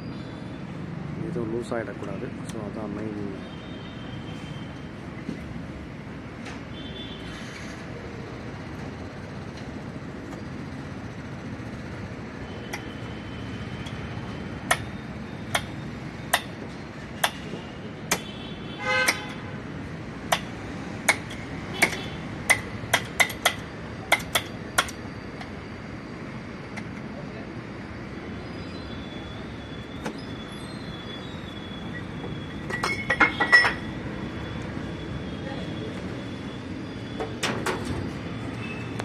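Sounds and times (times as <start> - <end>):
brief squeak: 29.9 - 32.8.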